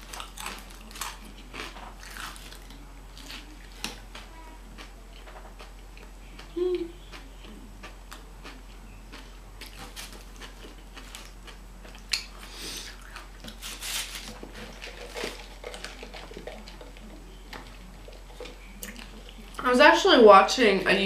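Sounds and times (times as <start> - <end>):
person chewing food: 0.0 - 19.6.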